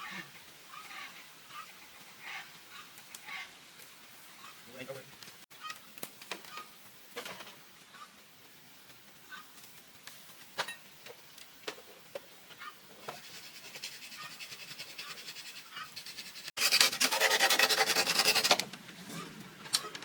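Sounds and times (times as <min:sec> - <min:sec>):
hand tool rasping on bamboo: 0:13.0 - 0:18.7.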